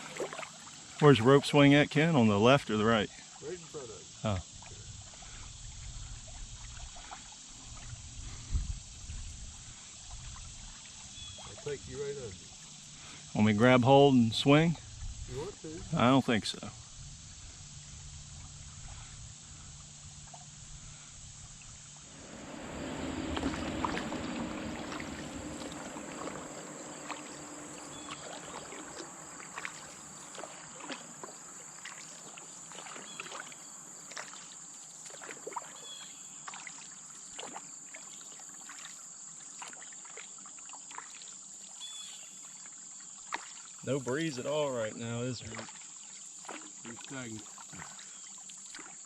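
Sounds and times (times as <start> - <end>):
water swishing and dripping: 0.0 - 1.6, 21.5 - 41.7, 45.3 - 49.0
wash of water: 0.0 - 2.4, 22.0 - 35.8
high insect drone: 0.0 - 49.0.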